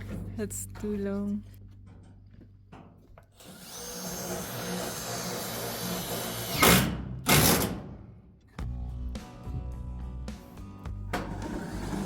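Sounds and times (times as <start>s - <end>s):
power drill running: 3.4s - 6.8s.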